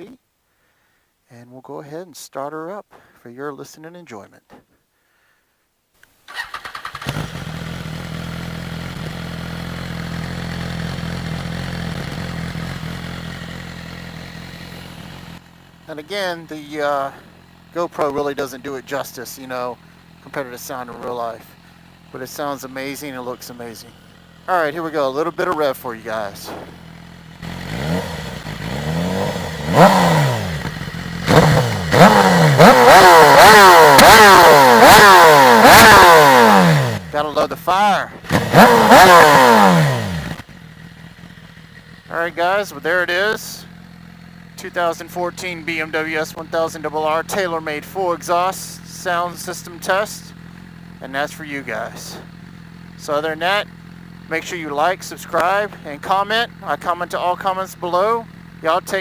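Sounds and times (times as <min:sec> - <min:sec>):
motorcycle starter crank: 0:06.3 - 0:07.6
motorcycle engine idling: 0:06.3 - 0:59.0.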